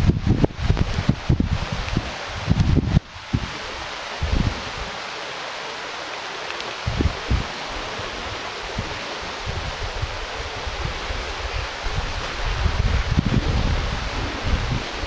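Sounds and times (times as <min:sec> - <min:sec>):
wind buffeting microphone: 0:00.0 - 0:05.1, 0:06.8 - 0:15.0
steady hiss: 0:00.0 - 0:15.0.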